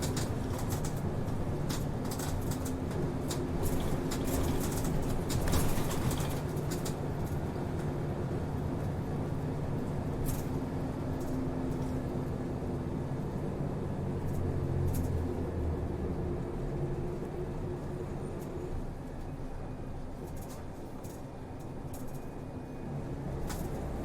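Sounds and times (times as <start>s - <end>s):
rattles and clicks: 0.0s - 7.9s, 20.2s - 22.3s
bus engine drone: 0.0s - 24.0s.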